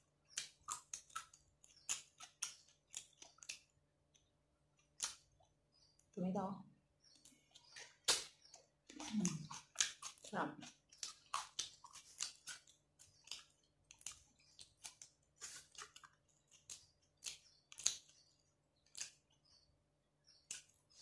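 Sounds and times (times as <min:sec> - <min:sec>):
person chewing with mouth smacks: 0:00.2 - 0:05.5, 0:07.2 - 0:18.2.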